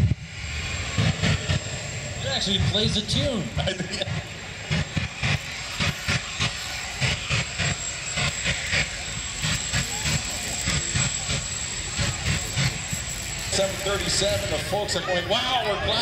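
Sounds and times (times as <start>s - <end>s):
jet engine running: 0.0s - 16.0s
thin high whine: 0.0s - 16.0s.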